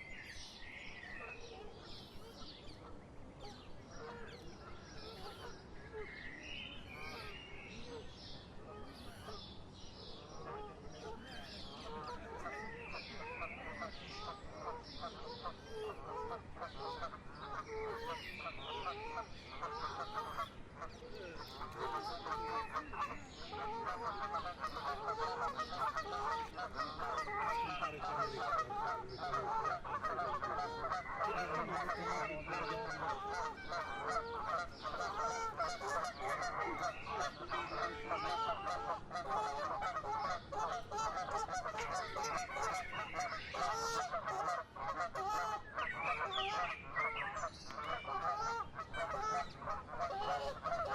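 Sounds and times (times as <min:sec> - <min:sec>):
flock of birds honking chatter: 0:00.0 - 0:50.9.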